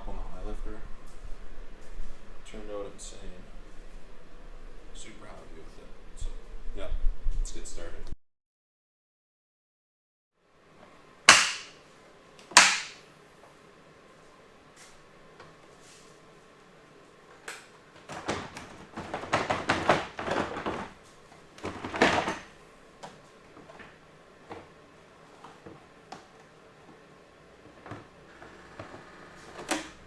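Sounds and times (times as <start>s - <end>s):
sharp clacks: 11.3s - 11.8s, 12.6s - 13.0s
tools clattering and knocking: 12.5s - 13.0s, 18.1s - 21.0s, 21.6s - 22.5s.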